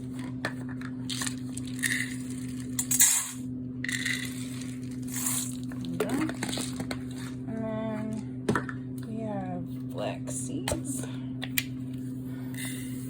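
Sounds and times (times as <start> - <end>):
steady low hum: 0.0 - 13.0
seeds pouring with dry rattle: 4.0 - 5.6.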